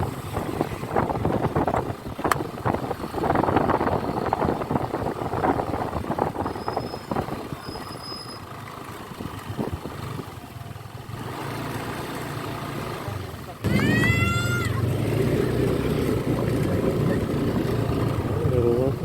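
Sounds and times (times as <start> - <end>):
wind buffeting microphone: 0.0 - 7.9
motorcycle engine: 0.0 - 19.0.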